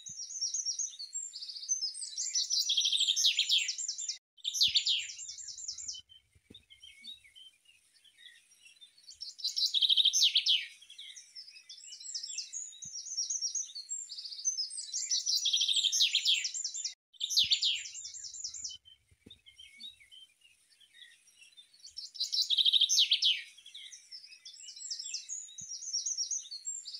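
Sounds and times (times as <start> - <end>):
soft bird chirps: 0.0 - 26.9
songbird trills: 0.0 - 26.9.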